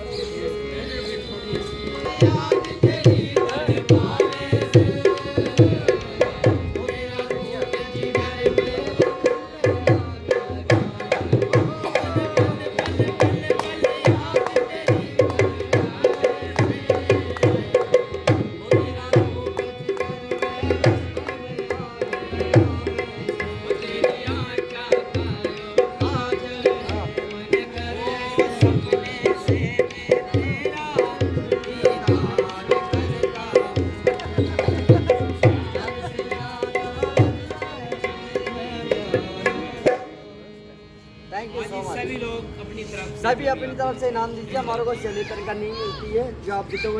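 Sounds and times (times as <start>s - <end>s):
hand drum played fast: 2.2s - 27.7s, 28.4s - 37.6s.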